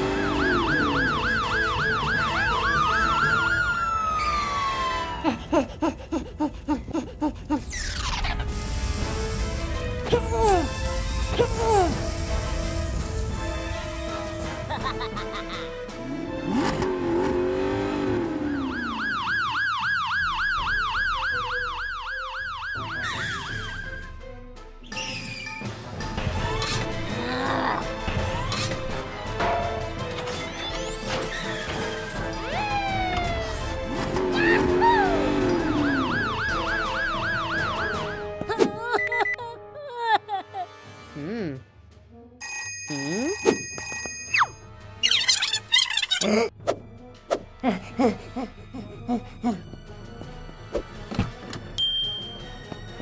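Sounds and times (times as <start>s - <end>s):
police siren: 0.0s - 5.2s, 17.9s - 24.0s, 32.5s - 33.9s, 34.6s - 38.4s.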